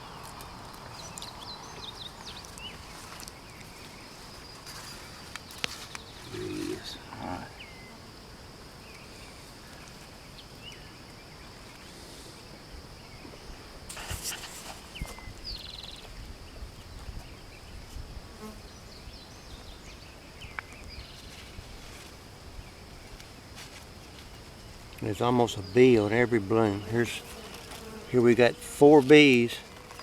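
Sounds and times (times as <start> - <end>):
insects droning: 0.0 - 30.0
bees buzzing: 26.2 - 29.0.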